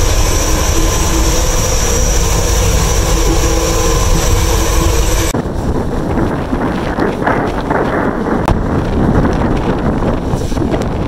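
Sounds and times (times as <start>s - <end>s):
high whine: 0.0s - 6.0s
train running noise: 0.0s - 11.0s.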